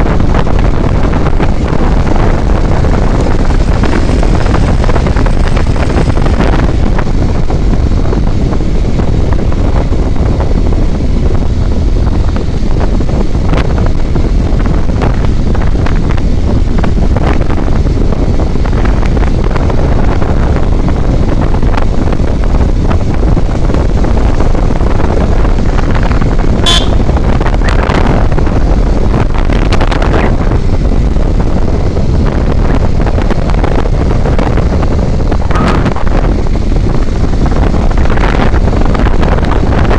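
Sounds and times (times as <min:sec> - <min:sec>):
road and engine noise: 0:00.0 - 0:39.9
wind buffeting microphone: 0:00.0 - 0:39.9
car horn toot: 0:26.6 - 0:27.2.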